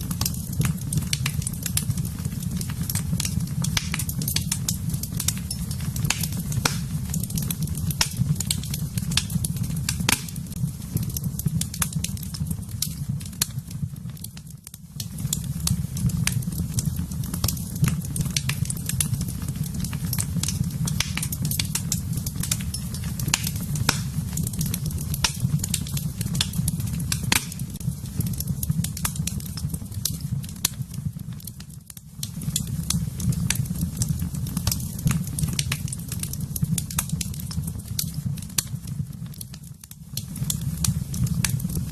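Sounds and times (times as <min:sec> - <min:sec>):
fire crackling in a fireplace: 0:00.0 - 0:41.9.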